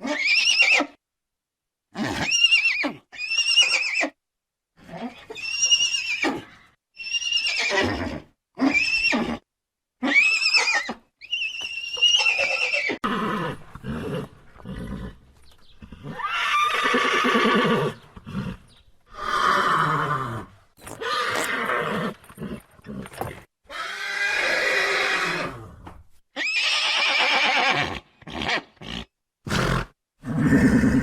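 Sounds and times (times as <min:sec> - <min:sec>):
horse neighing: 0:05.0 - 0:09.4, 0:10.0 - 0:15.2, 0:15.8 - 0:25.7, 0:26.4 - 0:31.0.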